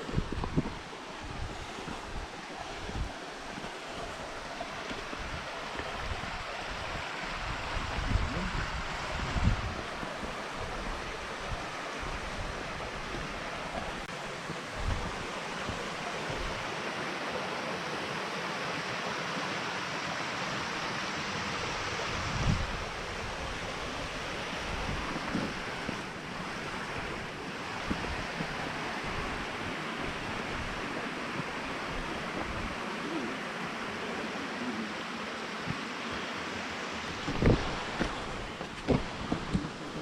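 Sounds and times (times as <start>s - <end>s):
wind bumps on microphone: 0.0s - 3.6s, 4.9s - 14.0s, 14.6s - 16.7s, 21.6s - 32.8s, 37.0s - 40.0s
mountain stream and waterfalls: 0.0s - 40.0s.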